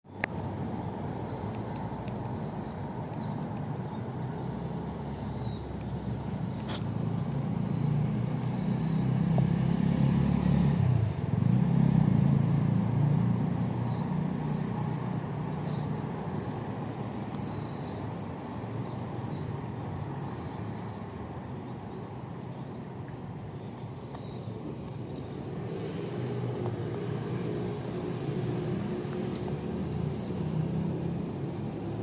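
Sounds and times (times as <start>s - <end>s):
road traffic rumbling: 0.0s - 32.0s
vehicle passing: 2.8s - 17.2s, 24.2s - 32.0s.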